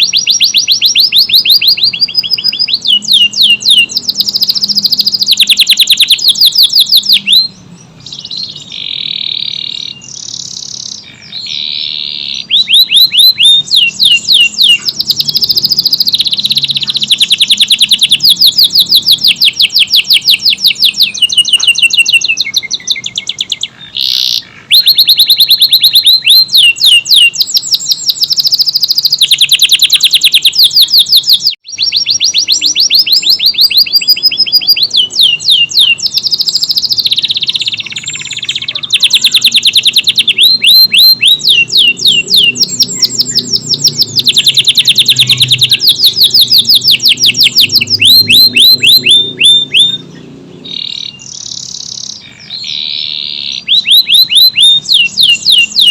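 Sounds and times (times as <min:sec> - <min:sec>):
canary trilling song: 0:00.0 - 0:55.9.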